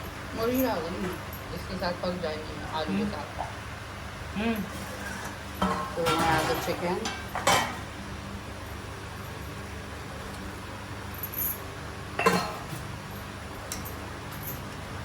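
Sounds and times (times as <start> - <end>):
steady low hum: 0.0 - 15.0
kitchenware clinking: 4.6 - 7.9, 12.2 - 12.8.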